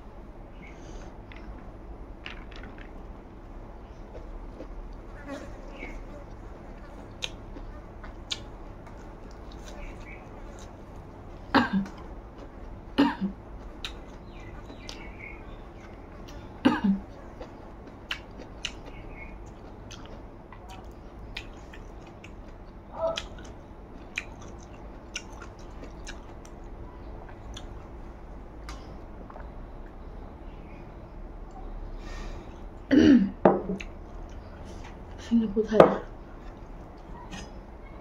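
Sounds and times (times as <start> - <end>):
wet chewing mouth clicks: 6.3 - 11.1, 13.6 - 15.2, 17.0 - 26.6, 27.3 - 27.8.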